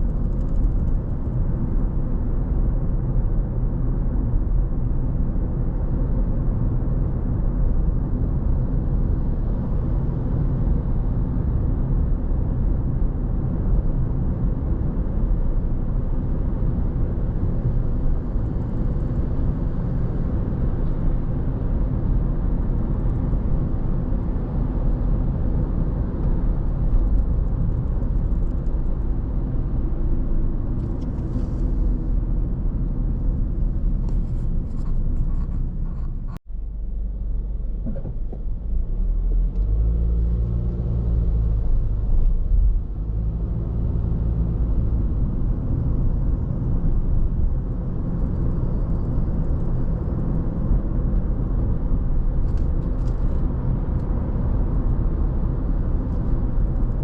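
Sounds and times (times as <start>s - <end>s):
car driving: 16.1s - 57.0s.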